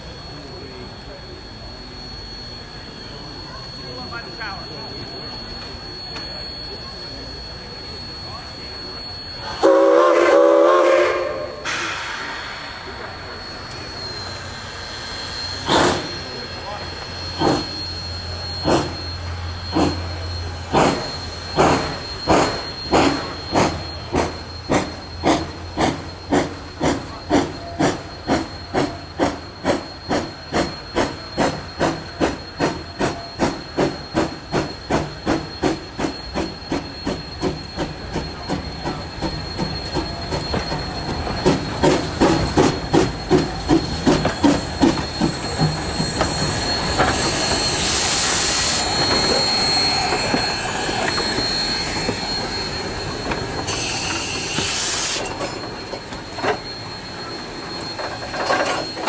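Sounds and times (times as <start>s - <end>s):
steam locomotive chuffing: 0.0s - 59.0s
steam hissing: 8.8s - 59.0s
thin high squeal: 26.9s - 59.0s.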